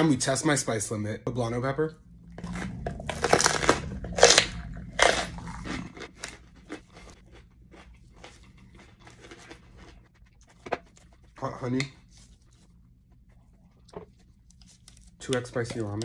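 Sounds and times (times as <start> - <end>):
person chewing: 2.1 - 11.4, 12.3 - 15.2
pepper crunching: 2.4 - 11.0.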